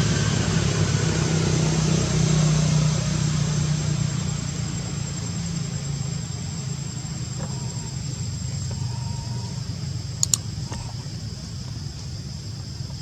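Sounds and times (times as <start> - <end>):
high insect drone: 0.0 - 13.0
sharp clicks: 10.2 - 11.0.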